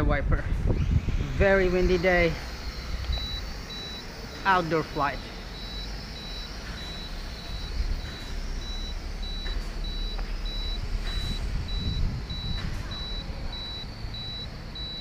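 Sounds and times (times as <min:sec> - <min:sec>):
wind buffeting microphone: 0:00.0 - 0:02.3, 0:10.8 - 0:13.3
toy drone propellers whining: 0:00.6 - 0:15.0
high electronic beeps: 0:01.1 - 0:15.0.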